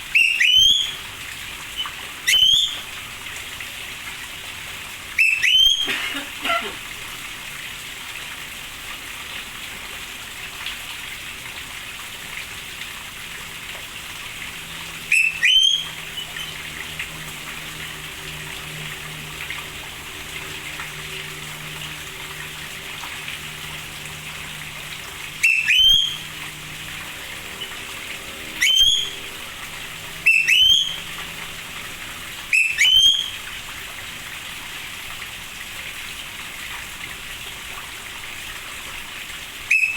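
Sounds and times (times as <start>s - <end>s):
bird whistled call: 0.1s - 1.1s, 1.8s - 3.0s, 5.2s - 5.9s, 15.1s - 16.6s, 25.4s - 26.4s, 28.4s - 29.6s, 30.2s - 31.2s, 32.5s - 33.5s, 39.7s - 39.9s.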